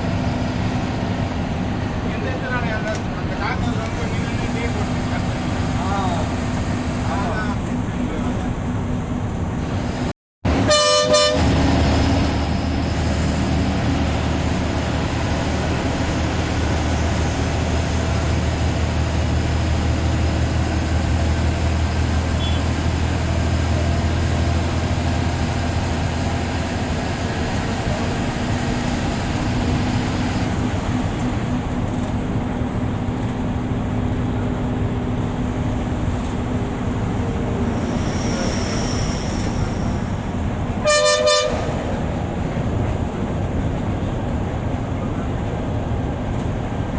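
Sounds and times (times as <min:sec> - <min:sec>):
bus engine drone and road noise: 0:00.0 - 0:46.9
bus horn blast: 0:10.5 - 0:11.8, 0:22.3 - 0:22.9, 0:40.7 - 0:42.2.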